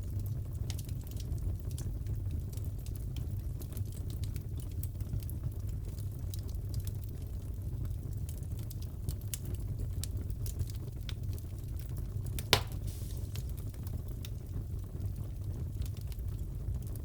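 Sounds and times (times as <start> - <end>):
wood fire crackling: 0.0 - 17.0
loud pop from fire: 12.4 - 13.8.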